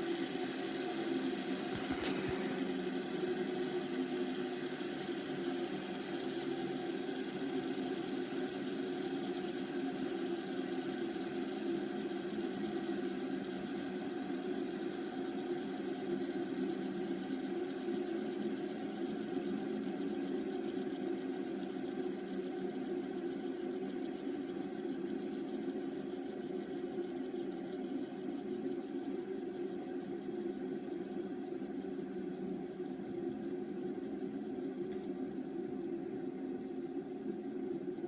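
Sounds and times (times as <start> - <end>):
fidget spinners whirring: 0.0 - 5.9.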